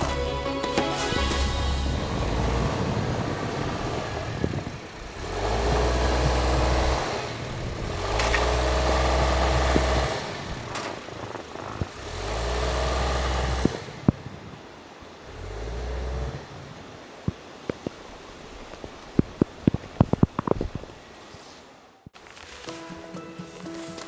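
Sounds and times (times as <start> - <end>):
engine surging with deep hum: 1.3 - 17.0.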